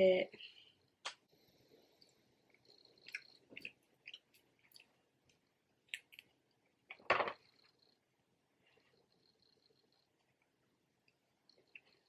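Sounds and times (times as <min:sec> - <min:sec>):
wet chewing: 0:01.9 - 0:07.0.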